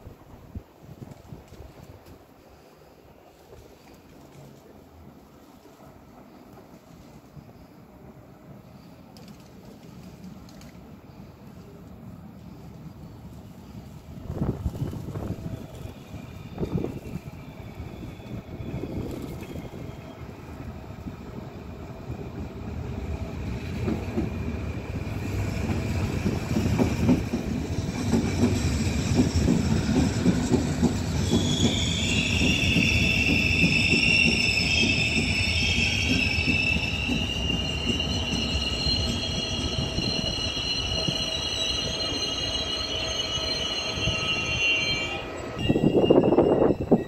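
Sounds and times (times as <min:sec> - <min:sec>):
train wheels rumbling on rails: 0:00.0 - 0:47.0
high metallic wheel squeal: 0:31.0 - 0:47.0.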